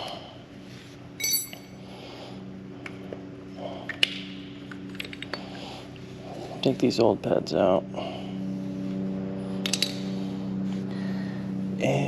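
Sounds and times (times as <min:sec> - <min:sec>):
steady low hum: 0:00.0 - 0:12.0
metal tools clinking: 0:01.2 - 0:01.8
ringing metallic clink: 0:01.2 - 0:01.8.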